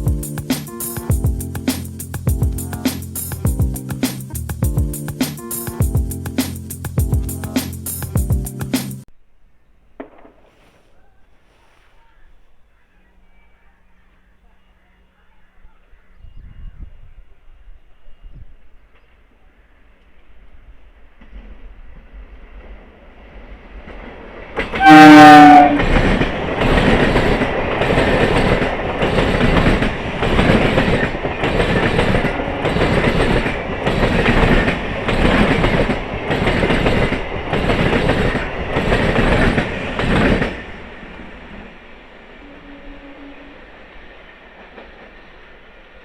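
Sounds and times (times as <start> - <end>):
train wheels clattering: 23.9 - 41.1
train horn: 24.7 - 26.2, 32.0 - 33.3, 42.3 - 43.8.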